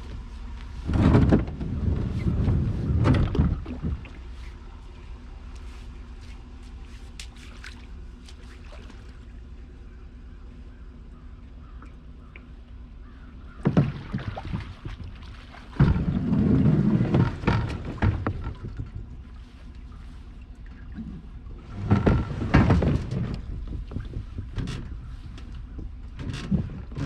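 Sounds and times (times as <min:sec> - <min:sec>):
wind rumble on microphone: 0:00.0 - 0:09.4, 0:13.4 - 0:27.0
paddle knocking against kayak hull: 0:13.1 - 0:19.5, 0:21.7 - 0:27.0.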